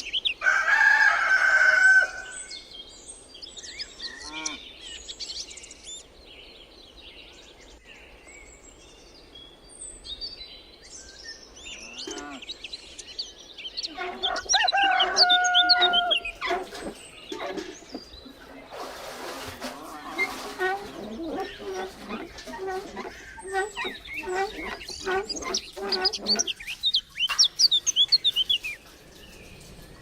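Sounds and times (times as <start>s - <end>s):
rooster crowing: 0.4s - 2.4s, 14.0s - 16.8s
small birds chirping: 2.4s - 30.0s
hen calls: 13.8s - 28.8s.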